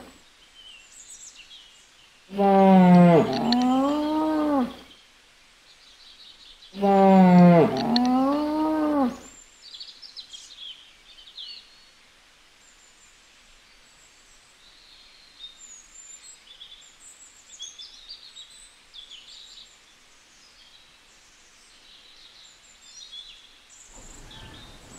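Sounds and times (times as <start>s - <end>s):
cow lowing: 2.3s - 4.9s, 6.8s - 9.3s, 24.0s - 24.9s
faint bird chirps: 23.8s - 24.9s.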